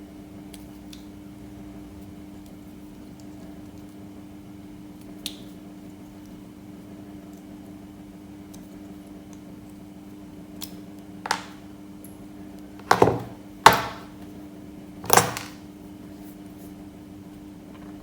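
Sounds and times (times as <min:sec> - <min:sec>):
objects knocking and clattering: 0:11.3 - 0:11.6, 0:12.8 - 0:14.2, 0:15.0 - 0:15.6.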